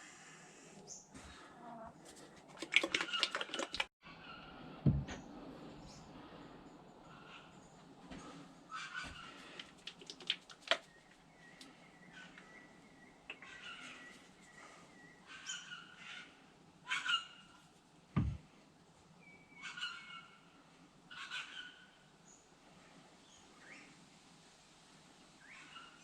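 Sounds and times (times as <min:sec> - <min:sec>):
low dull thump: 0:04.8 - 0:05.2, 0:18.2 - 0:18.4
birds calling: 0:07.0 - 0:17.6, 0:19.2 - 0:22.4.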